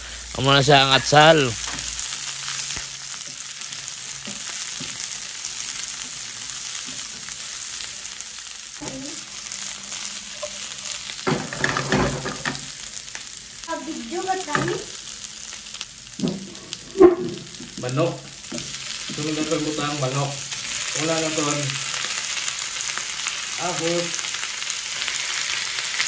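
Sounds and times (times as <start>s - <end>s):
vegetables sizzling in hot oil: 0.0s - 26.0s
spatula stirring in wok: 9.2s - 12.6s.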